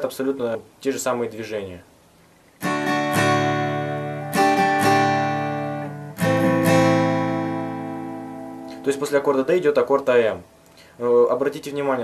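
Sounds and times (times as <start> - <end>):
acoustic guitar strumming: 2.5 - 9.6.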